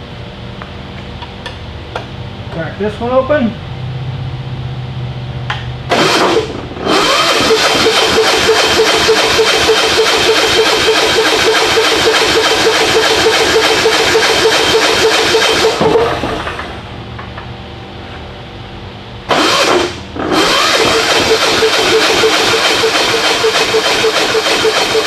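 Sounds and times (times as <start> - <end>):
starter cranking diesel engine: 5.9 - 16.9, 19.3 - 25.0.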